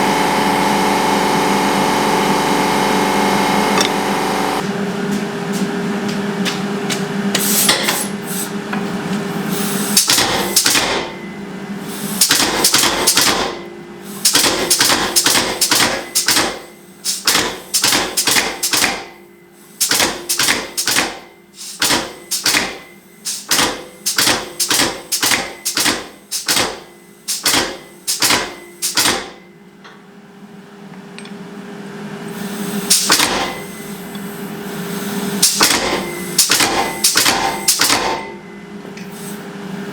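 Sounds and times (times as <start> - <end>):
forge humming: 0.0 - 12.0
hammer striking steel on anvil: 7.4 - 8.1, 10.0 - 11.3, 14.3 - 19.2, 19.9 - 30.0, 35.4 - 39.1.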